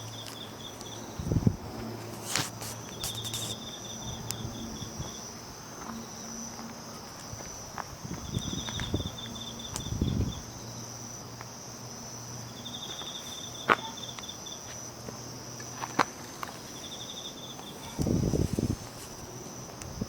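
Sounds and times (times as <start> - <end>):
insect high trill: 0.0 - 20.0
low scuffing: 1.7 - 3.7, 5.0 - 9.9, 12.8 - 19.8.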